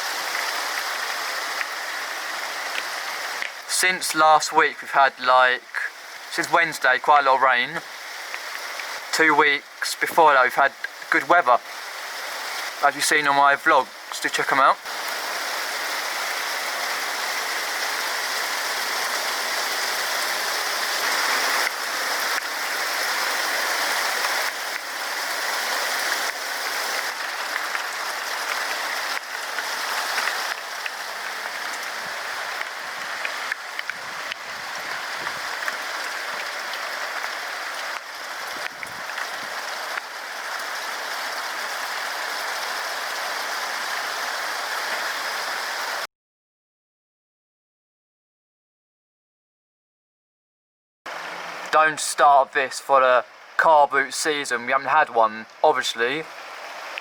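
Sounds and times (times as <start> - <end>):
raindrops tapping: 0.0 - 4.2, 5.7 - 44.2, 55.4 - 57.0
heavy rain hiss: 0.0 - 46.1, 51.1 - 57.0.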